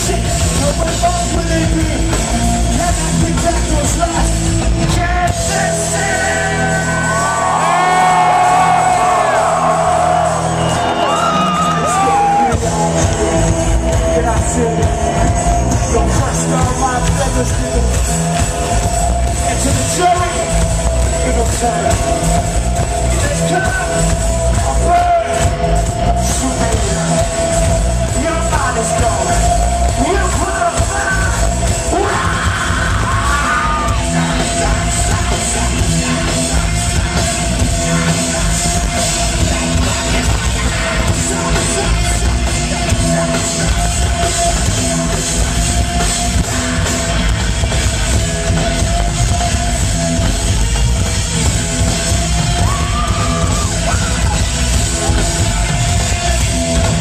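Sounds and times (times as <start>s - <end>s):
heavy rock band playing: 0.0s - 57.0s.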